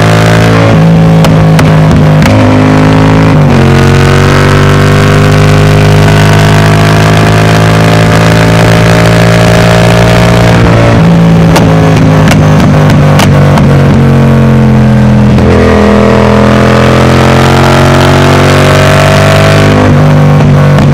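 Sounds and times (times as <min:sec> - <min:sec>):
exhaust popping: 0:00.0 - 0:20.9
motorcycle engine running: 0:00.0 - 0:20.9.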